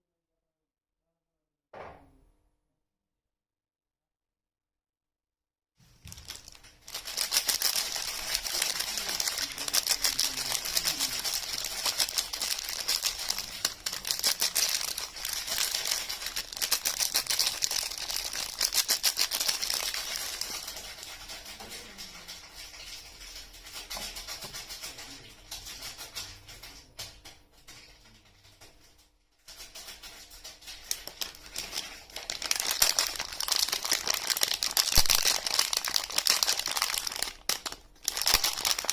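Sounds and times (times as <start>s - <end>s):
wrapper crinkling and tearing: 6.0s - 25.0s, 29.5s - 38.9s.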